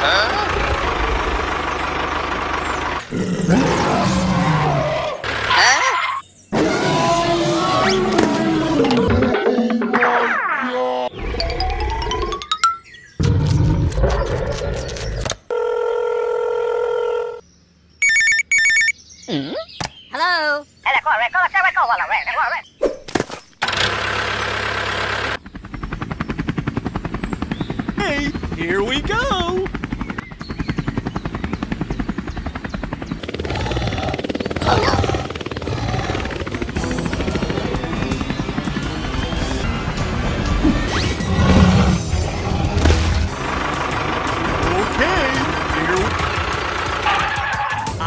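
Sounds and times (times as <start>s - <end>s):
helicopter rotor chopping: 0.0s - 5.9s, 23.6s - 48.0s
electronic phone ringing: 15.5s - 17.4s, 18.0s - 19.0s
music: 36.4s - 43.3s.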